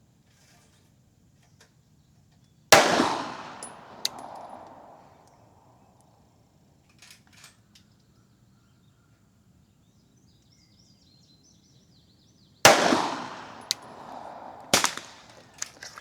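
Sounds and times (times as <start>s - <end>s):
pistol shot with echo: 2.8s - 5.2s, 12.7s - 16.0s.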